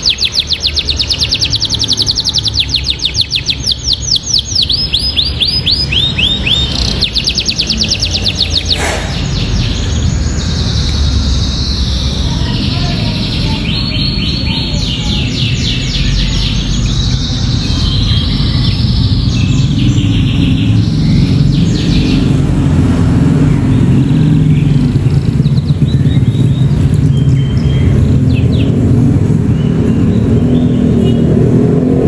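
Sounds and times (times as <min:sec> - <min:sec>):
canary singing fast trills: 0:00.0 - 0:31.6.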